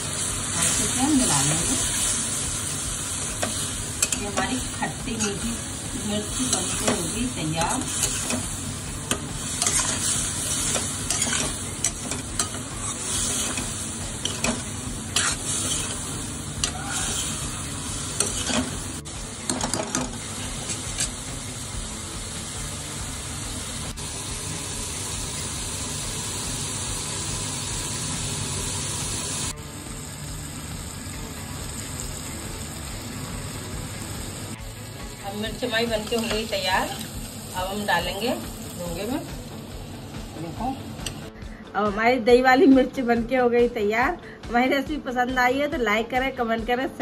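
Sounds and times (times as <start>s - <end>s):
chillies sizzling in a pan: 0.0s - 41.2s
steel spoon scraping a pan: 3.3s - 5.6s, 6.2s - 18.9s, 19.6s - 21.2s.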